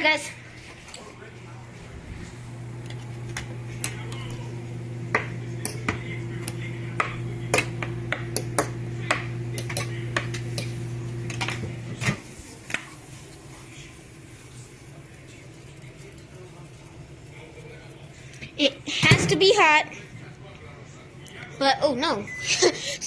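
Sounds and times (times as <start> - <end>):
microwave oven humming: 1.3 - 18.8.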